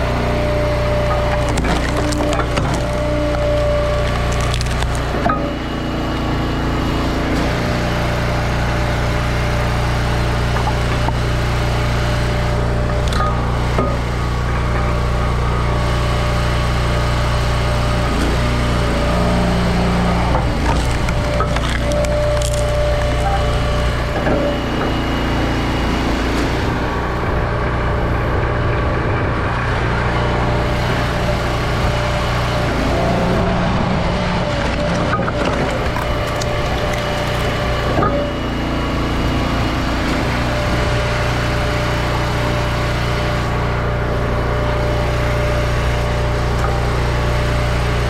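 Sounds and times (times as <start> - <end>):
wood cracking and splintering: 0.0 - 5.4, 12.5 - 14.1, 18.1 - 24.6, 34.4 - 38.2
log splitter engine running: 0.0 - 48.0.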